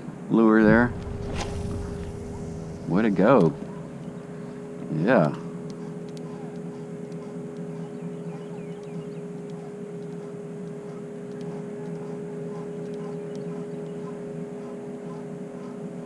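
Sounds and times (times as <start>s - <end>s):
steady motor hum: 0.0s - 16.0s
faint ticks: 5.2s - 15.8s.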